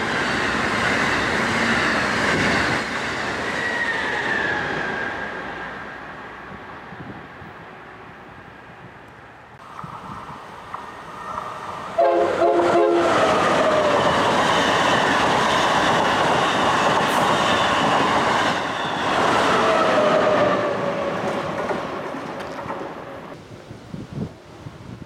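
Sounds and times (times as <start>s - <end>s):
falling whine of passing train: 0.0s - 25.0s
train passing at speed: 0.0s - 25.0s
train horn blasts: 12.0s - 13.4s.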